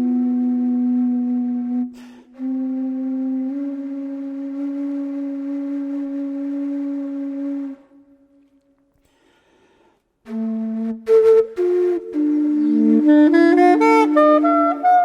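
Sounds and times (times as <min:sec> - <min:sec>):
saxophone notes: 0:11.6 - 0:15.0.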